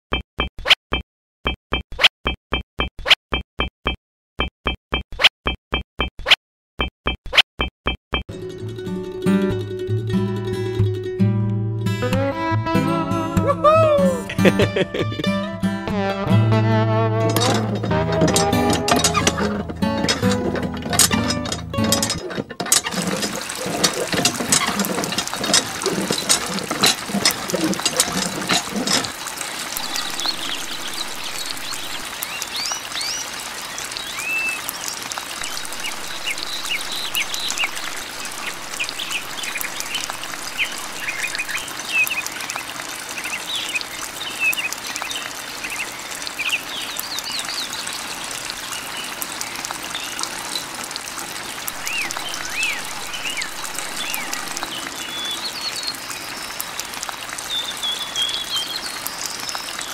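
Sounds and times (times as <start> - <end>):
water trickling into basin: 17.2 - 59.9.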